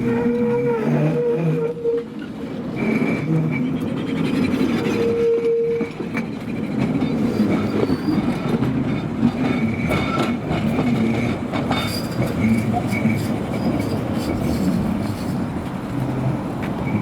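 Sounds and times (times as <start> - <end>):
tram rumble: 0.0 - 17.0
wheels clattering over rail joints: 2.0 - 17.0
high-pitched wheel squeal: 4.8 - 6.0, 7.2 - 8.4, 11.7 - 15.5.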